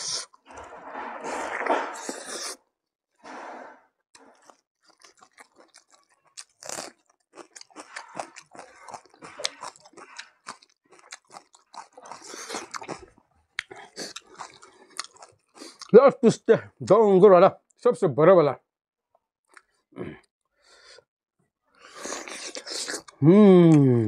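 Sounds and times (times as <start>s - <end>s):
person chewing and crunching: 0.0s - 2.6s, 4.2s - 15.9s, 21.8s - 23.9s.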